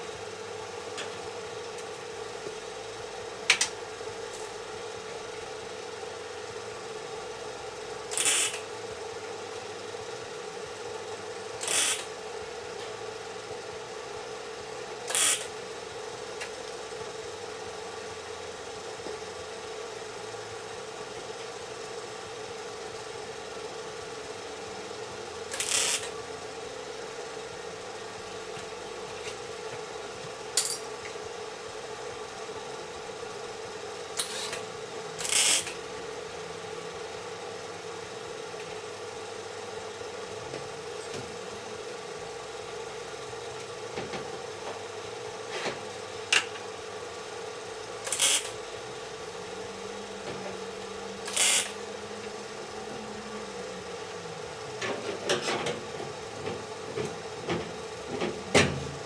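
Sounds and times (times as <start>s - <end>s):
workshop tool bursts: 8.1s - 8.6s, 11.6s - 12.1s, 15.1s - 15.5s, 25.5s - 26.1s, 35.2s - 35.8s, 48.0s - 48.6s, 51.2s - 51.8s
steady hum: 45.0s - 59.0s.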